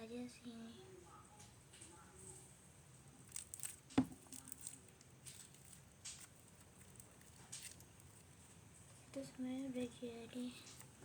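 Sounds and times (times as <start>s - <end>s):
sticky slime squelching: 3.2s - 11.0s.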